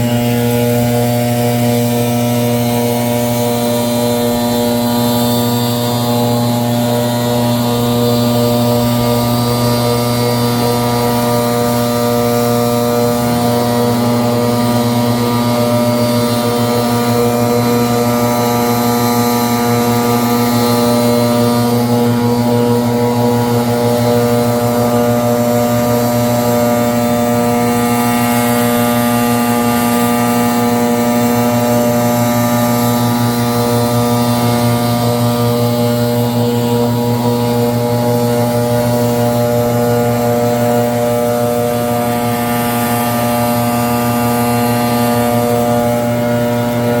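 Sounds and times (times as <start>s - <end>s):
leaf blower engine drone: 0.0s - 47.0s.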